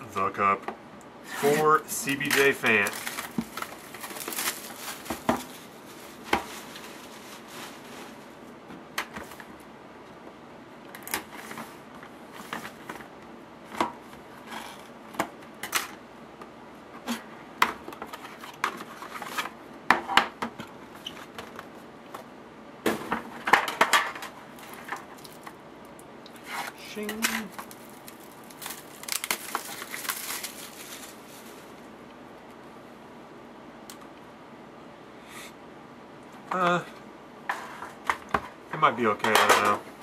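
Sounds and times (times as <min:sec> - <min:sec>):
packaging rustling: 0:01.4 - 0:08.4, 0:27.2 - 0:31.8.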